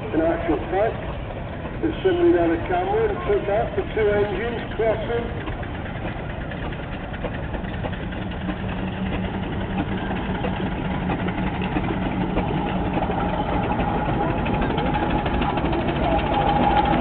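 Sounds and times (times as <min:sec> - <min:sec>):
steam road engine running: 0:00.0 - 0:17.0.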